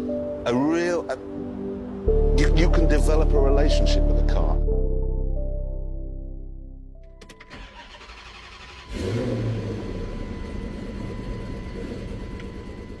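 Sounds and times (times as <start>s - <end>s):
music: 0.0s - 8.4s
car engine starting and idling: 7.0s - 13.0s.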